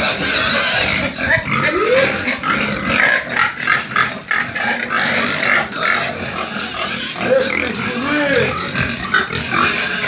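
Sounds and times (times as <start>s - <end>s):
pigs squealing: 0.0s - 10.0s.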